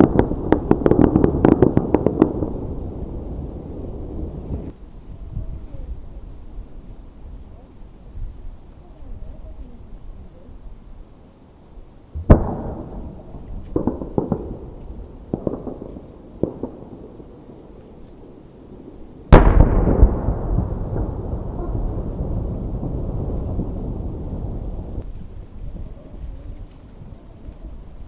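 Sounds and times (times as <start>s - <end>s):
rolling echo: 0.0s - 4.7s, 12.2s - 25.1s
fireworks booming: 0.0s - 4.8s, 12.1s - 25.1s
fireworks pops: 12.2s - 17.0s.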